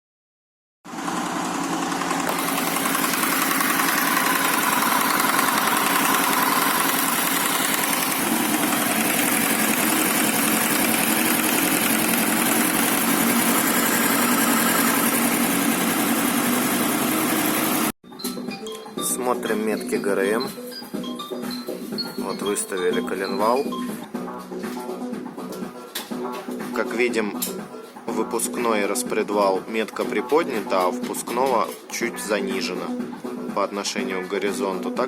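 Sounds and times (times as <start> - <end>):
motorcycle engine running with knock: 0.9 - 17.9.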